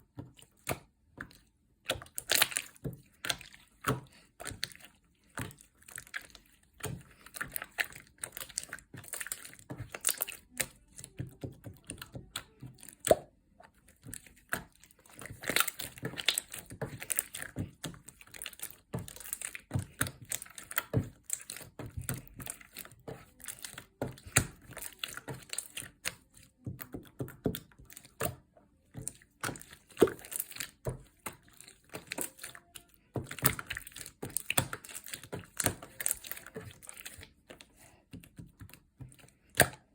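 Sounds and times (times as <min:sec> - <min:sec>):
slime crackling and squelching: 0:00.0 - 0:39.9.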